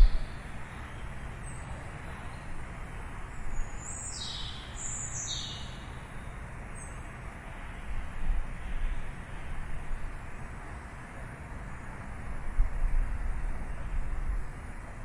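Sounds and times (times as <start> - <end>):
distant city traffic hum: 0.0 - 15.0
small birds chirping: 3.5 - 5.8.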